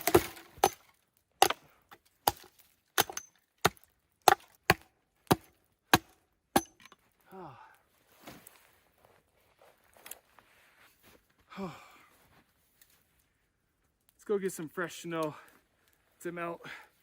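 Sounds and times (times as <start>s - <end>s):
axe chopping wood: 0.0s - 6.9s.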